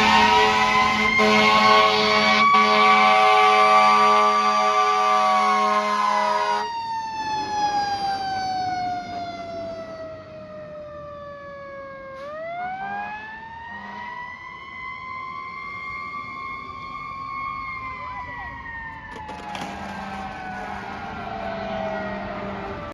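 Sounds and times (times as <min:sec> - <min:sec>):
fire engine horn blast: 0:00.0 - 0:06.7, 0:12.1 - 0:14.4, 0:19.1 - 0:22.9
fire engine siren winding: 0:00.0 - 0:22.9.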